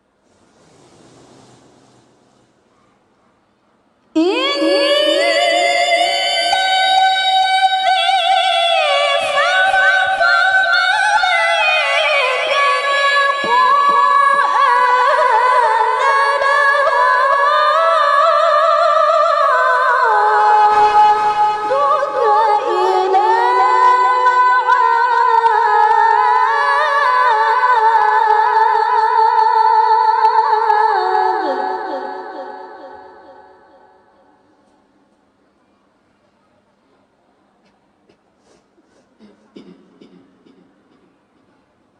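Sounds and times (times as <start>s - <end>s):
woman reciting melodically: 4.2s - 34.7s.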